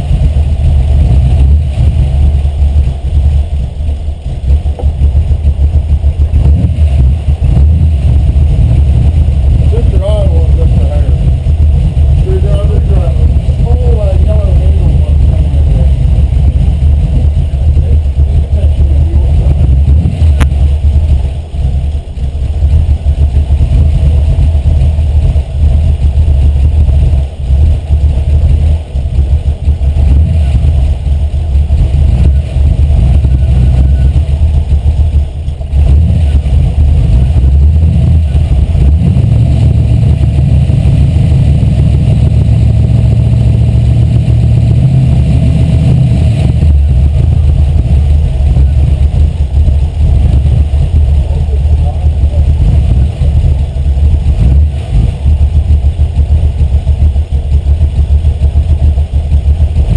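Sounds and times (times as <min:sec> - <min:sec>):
car engine idling unevenly: 0:00.0 - 0:59.9.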